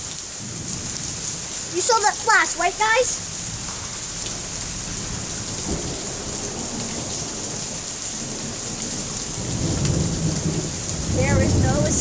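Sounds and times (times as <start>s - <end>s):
heavy rain pouring: 0.0s - 12.0s
low rumble of thunder: 0.4s - 1.7s, 2.6s - 12.0s.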